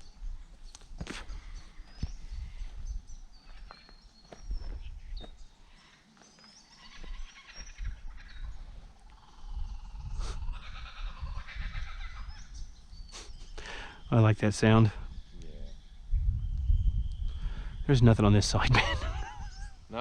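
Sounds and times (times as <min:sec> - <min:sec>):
small birds chirping: 0:00.0 - 0:20.0
kookaburras laughing calls: 0:06.8 - 0:13.9, 0:18.6 - 0:20.0.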